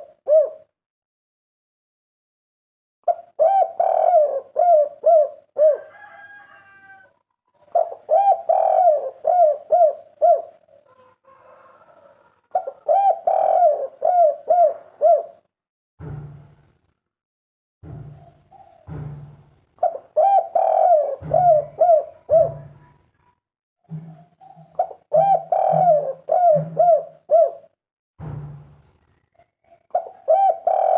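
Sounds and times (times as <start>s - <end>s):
dove cooing: 0.0s - 0.7s, 3.1s - 15.5s, 19.8s - 23.0s, 24.0s - 27.8s, 29.6s - 30.9s.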